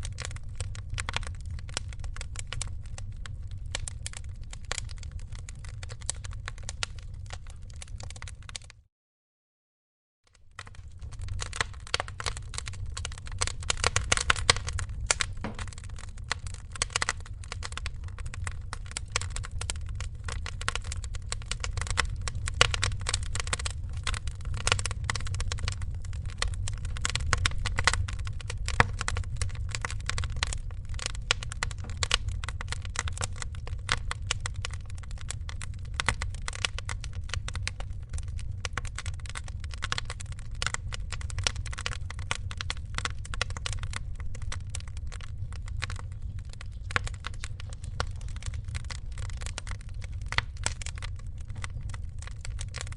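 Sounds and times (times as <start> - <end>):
wood fire crackling: 0.0 - 8.8, 10.3 - 52.9
steady low rumble: 10.6 - 52.9.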